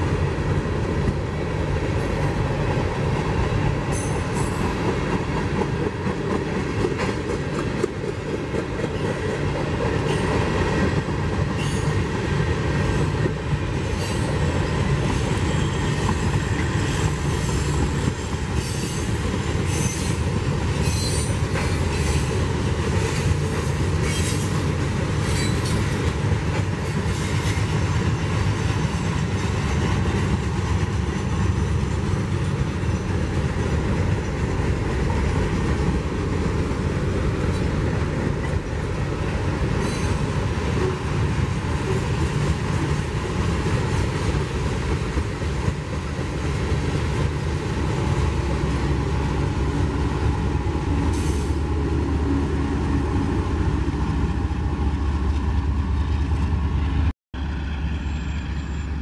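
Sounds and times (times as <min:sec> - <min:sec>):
clickety-clack of rail joints: 0:00.0 - 0:57.1
train wheels squealing: 0:11.6 - 0:12.0, 0:15.1 - 0:22.3, 0:23.1 - 0:24.6, 0:25.2 - 0:26.0, 0:39.8 - 0:40.3, 0:57.6 - 0:59.0.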